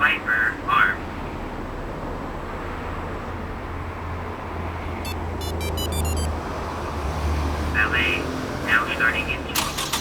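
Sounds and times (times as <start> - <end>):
short high electronic beeps: 5.1 - 6.3.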